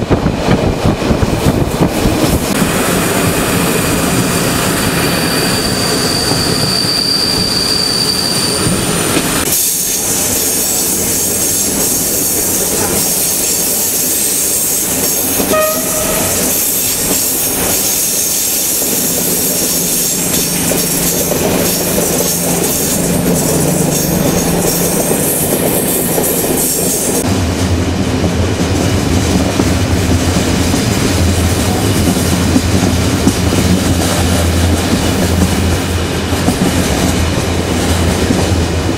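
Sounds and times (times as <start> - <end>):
train wheels rumbling on track: 0.0 - 38.9
high wheel squeal: 4.0 - 12.0, 15.4 - 17.0
train horn toot: 15.4 - 16.7.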